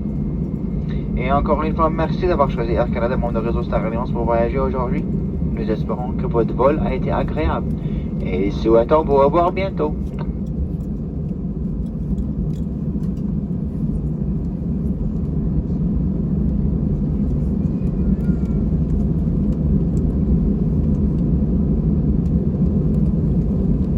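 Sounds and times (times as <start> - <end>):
airplane cabin rumble: 0.0 - 23.9.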